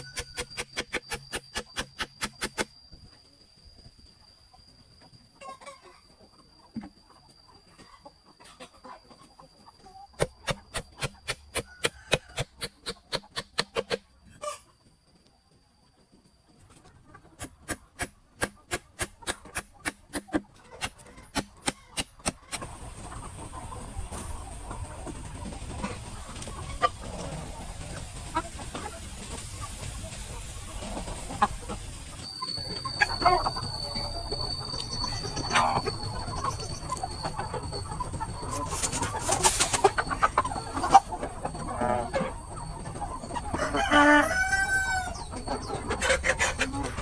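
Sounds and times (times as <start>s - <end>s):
sharp chicken calls: 0.0s - 2.7s, 8.0s - 14.8s, 16.7s - 24.2s, 32.3s - 34.3s, 35.5s - 47.0s
sharp evenly spaced knocks: 0.0s - 2.7s, 10.2s - 14.0s, 17.4s - 22.7s
chickens clucking: 0.0s - 3.4s, 5.0s - 47.0s
faint high whine: 0.0s - 15.4s, 28.9s - 43.6s.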